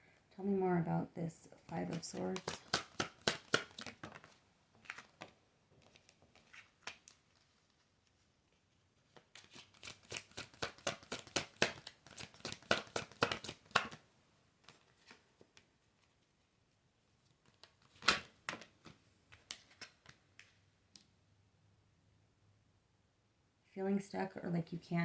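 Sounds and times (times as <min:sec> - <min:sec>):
card snapping: 0:01.9 - 0:04.2
cards riffle shuffling: 0:01.9 - 0:07.4, 0:09.1 - 0:14.0.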